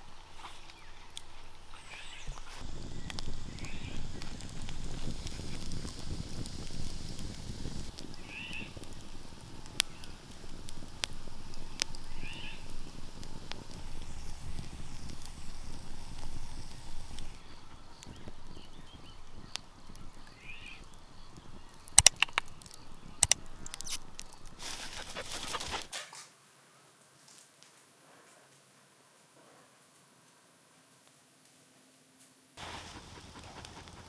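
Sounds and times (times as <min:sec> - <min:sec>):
low rumbling: 0:00.0 - 0:25.8
sharp clicks: 0:00.0 - 0:25.9.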